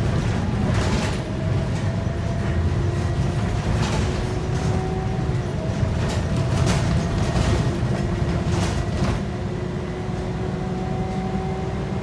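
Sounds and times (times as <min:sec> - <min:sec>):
bus body rattles: 0:00.0 - 0:09.4
bus engine drone: 0:00.0 - 0:12.0.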